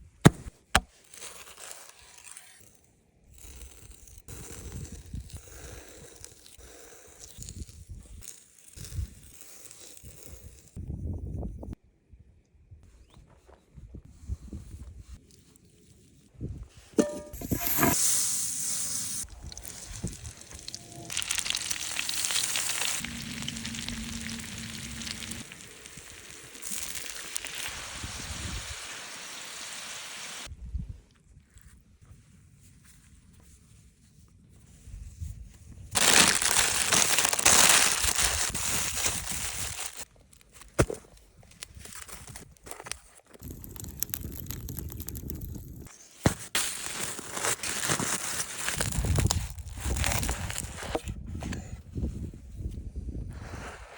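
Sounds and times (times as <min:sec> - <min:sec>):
crinkling and tearing: 0:00.3 - 0:10.8, 0:19.2 - 0:27.7, 0:35.9 - 0:51.0
food sizzling in hot fat: 0:17.0 - 0:30.5, 0:36.0 - 0:40.1
sharp crackles and clicks: 0:18.7 - 0:29.1, 0:35.9 - 0:40.1, 0:42.9 - 0:45.9.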